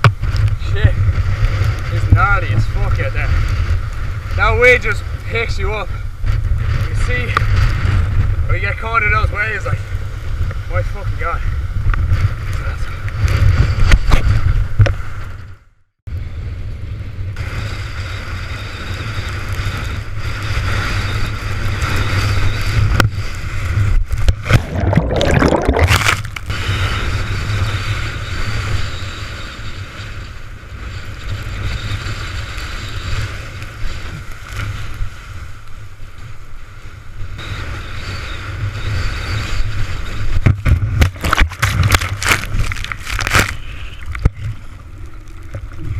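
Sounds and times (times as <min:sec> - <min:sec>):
wind buffeting microphone: 0:00.0 - 0:45.9
water rushing and splashing: 0:24.3 - 0:26.5.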